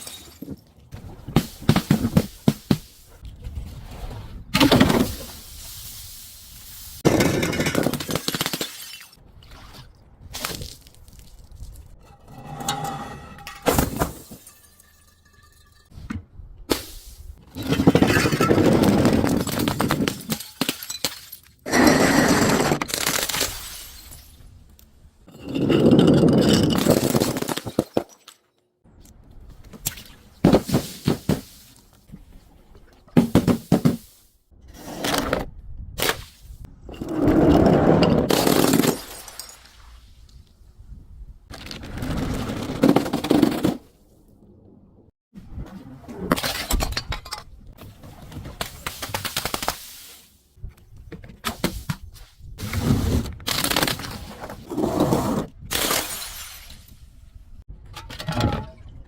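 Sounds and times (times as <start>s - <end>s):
glass bottles breaking: 0.0s - 0.6s, 7.1s - 9.2s, 13.4s - 15.9s, 17.8s - 21.9s, 38.3s - 39.7s
sharp glass cracks: 8.0s - 9.2s.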